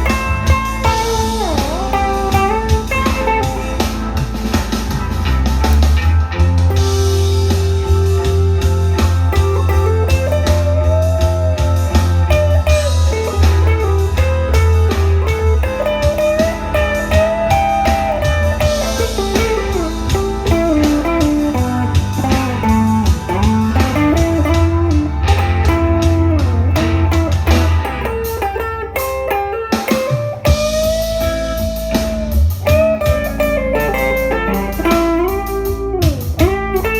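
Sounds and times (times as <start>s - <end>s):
electric guitar lead lines: 0.0s - 36.9s.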